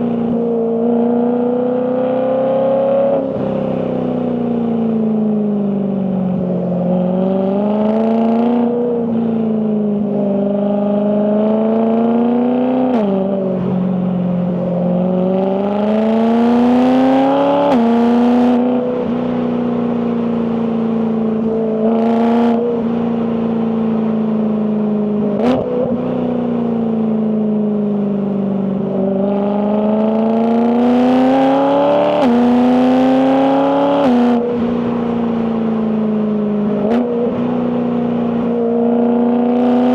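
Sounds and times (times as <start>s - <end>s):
car engine revving through gears: 6.9s - 8.8s, 14.8s - 19.2s, 21.5s - 22.9s, 25.3s - 26.2s, 29.0s - 34.8s, 36.7s - 39.9s.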